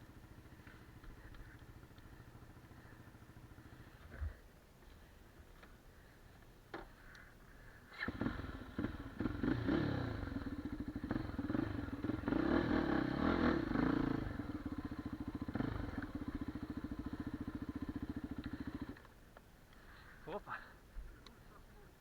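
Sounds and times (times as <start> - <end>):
motorcycle engine revving and running: 8.0 - 19.0.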